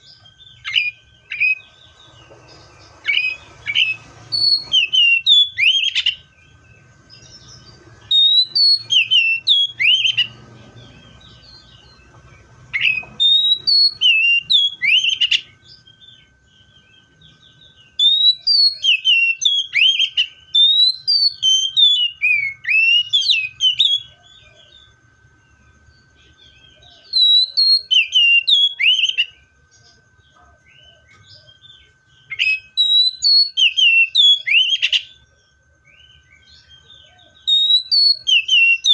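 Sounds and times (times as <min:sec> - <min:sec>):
bird whistled song: 0:00.0 - 0:38.9.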